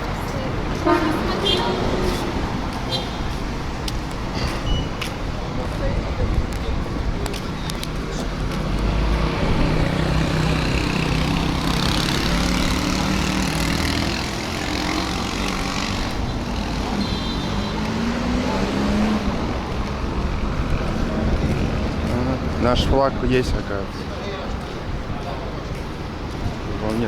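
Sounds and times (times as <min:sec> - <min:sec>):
vehicles passing: 0:00.0 - 0:27.0.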